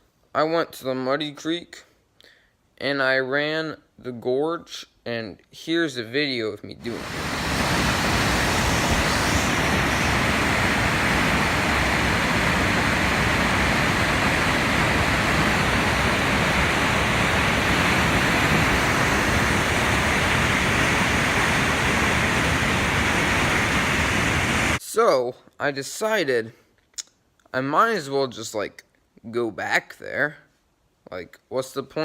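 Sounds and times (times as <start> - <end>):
whitewater rushing: 6.8 - 24.8.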